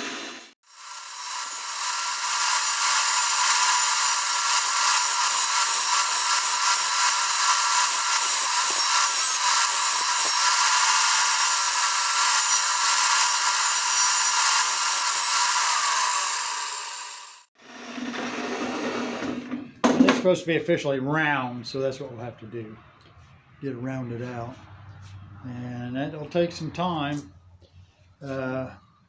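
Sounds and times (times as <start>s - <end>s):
power saw cutting wood: 0.0s - 19.6s.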